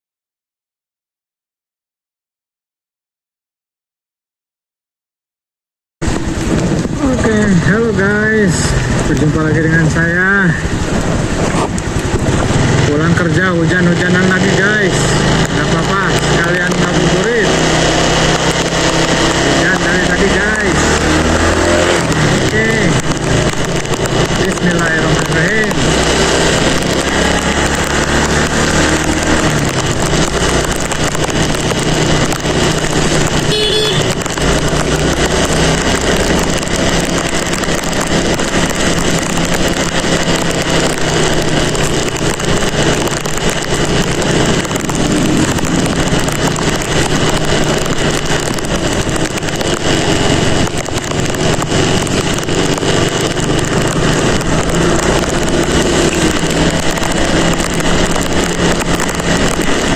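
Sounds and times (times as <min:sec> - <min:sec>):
wind noise: 0:06.0 - 0:12.9
motorcycle engine: 0:06.0 - 0:59.9
rain: 0:06.0 - 0:59.9.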